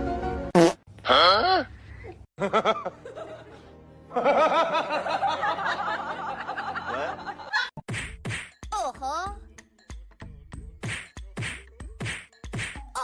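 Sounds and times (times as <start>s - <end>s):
music: 0.0s - 0.6s, 2.4s - 13.0s.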